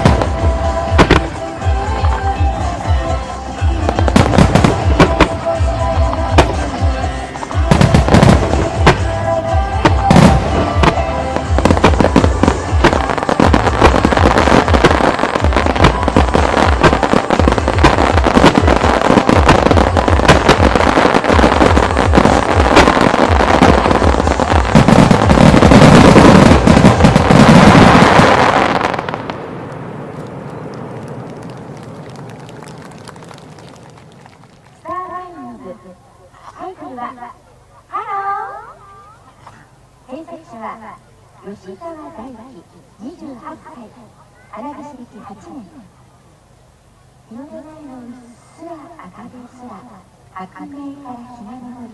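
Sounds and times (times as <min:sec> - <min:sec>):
music: 0:00.0 - 0:28.9
fireworks bursting and crackling: 0:00.0 - 0:35.8.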